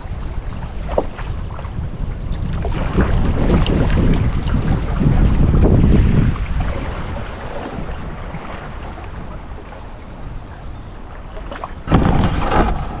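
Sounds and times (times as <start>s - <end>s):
wind buffeting microphone: 0.0s - 13.0s
river water rushing: 2.9s - 13.0s.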